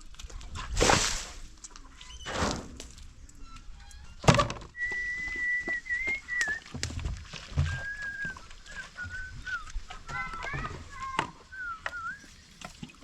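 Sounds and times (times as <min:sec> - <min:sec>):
person whistling: 0:04.8 - 0:06.7, 0:07.6 - 0:09.8, 0:11.5 - 0:12.3.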